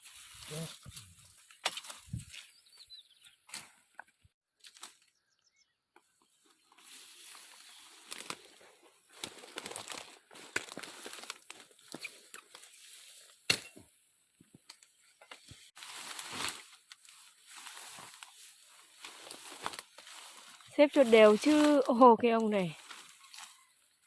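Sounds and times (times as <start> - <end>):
plant stems rustling: 6.6 - 13.4, 15.8 - 23.7
stems snapping: 8.0 - 12.7.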